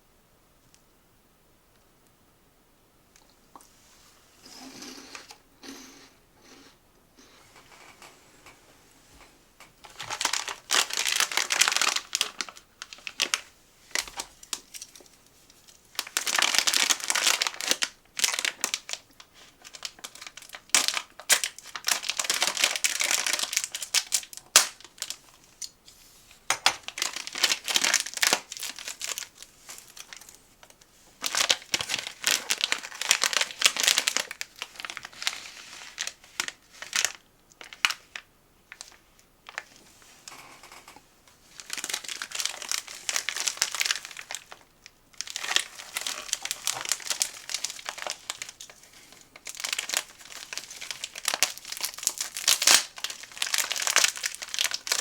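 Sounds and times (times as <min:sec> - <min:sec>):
snack packaging crinkling: 0:09.8 - 0:25.8, 0:26.4 - 0:39.8, 0:41.5 - 0:55.0.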